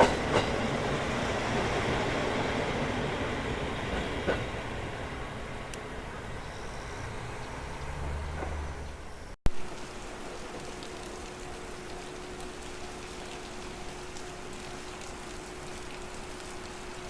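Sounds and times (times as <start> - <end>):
diesel railcar rumble: 0.0 - 9.4
steady hiss: 0.0 - 17.0.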